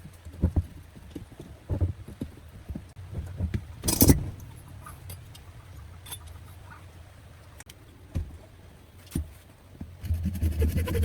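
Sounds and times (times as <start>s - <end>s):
hard objects knocking and clunking: 0.0s - 4.5s.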